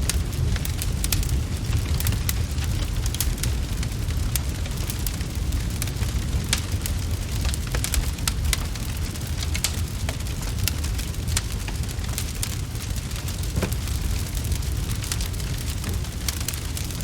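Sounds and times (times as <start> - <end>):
fire low rumble: 0.0 - 17.0
wood fire crackling and popping: 0.0 - 17.0.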